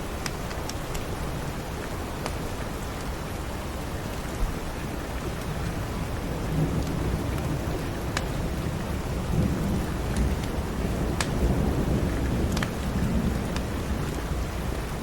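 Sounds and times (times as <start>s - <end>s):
steady rain: 0.0s - 15.0s
wood fire crackling: 6.8s - 14.3s.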